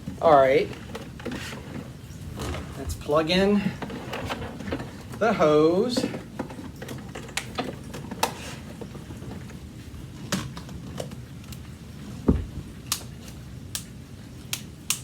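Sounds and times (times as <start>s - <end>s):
heavy thump: 12.2s - 12.7s.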